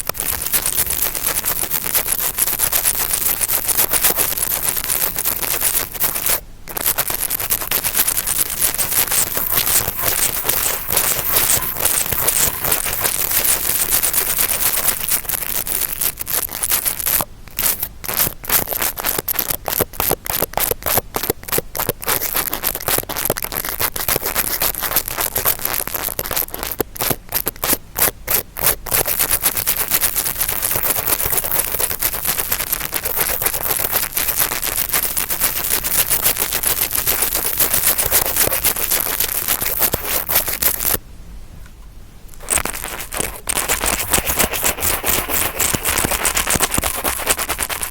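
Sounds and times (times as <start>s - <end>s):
brush scraping and scratching: 0.1s - 19.2s, 28.3s - 41.0s, 42.4s - 47.9s.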